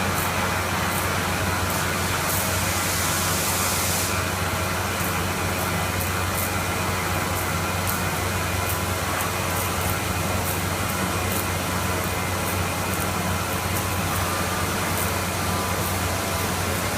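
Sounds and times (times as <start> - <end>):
cnc router running: 0.0 - 16.9.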